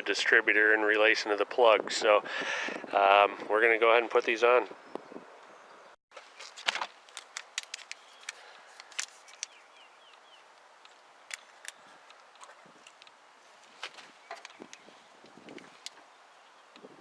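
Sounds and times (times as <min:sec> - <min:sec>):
clicks of plug wires handled: 0:06.4 - 0:10.2, 0:13.8 - 0:16.0.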